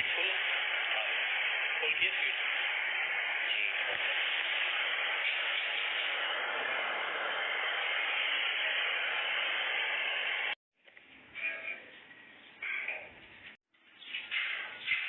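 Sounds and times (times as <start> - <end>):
steady hiss of noise: 0.0 - 10.6.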